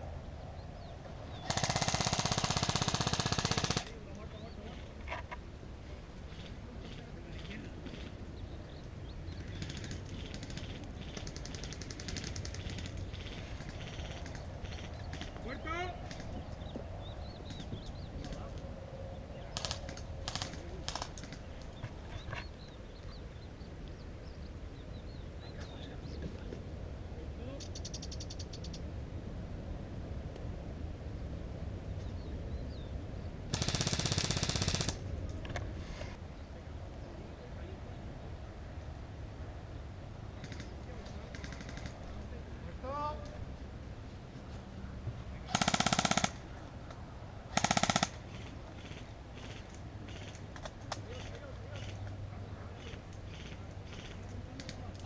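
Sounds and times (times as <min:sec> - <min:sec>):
steady low rumble: 0:00.0 - 0:50.1
small birds chirping: 0:00.1 - 0:29.2, 0:31.1 - 0:34.8
airsoft rifle full-auto bursts: 0:01.5 - 0:03.9, 0:33.5 - 0:35.0, 0:45.5 - 0:46.4, 0:47.5 - 0:48.2.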